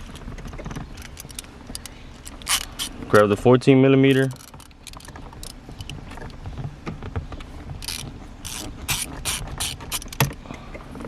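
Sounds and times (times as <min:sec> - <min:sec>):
ratchet pawl clicking: 0:00.9 - 0:03.0, 0:07.8 - 0:10.3.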